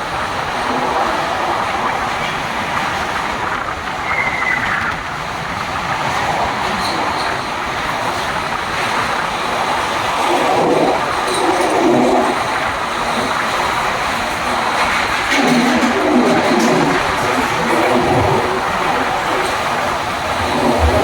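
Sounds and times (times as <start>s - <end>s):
train coaches rumbling and rattling: 0.0s - 21.0s.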